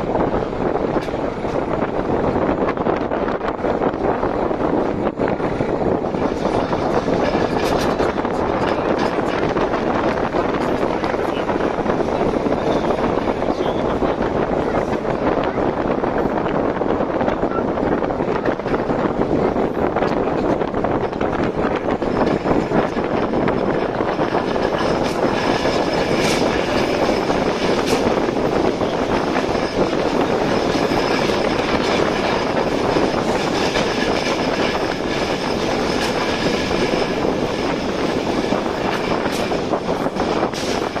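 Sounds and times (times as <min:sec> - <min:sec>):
train rolling rumble: 0:00.0 - 0:41.0
wheels clicking over rail joints: 0:04.8 - 0:11.9, 0:19.9 - 0:41.0.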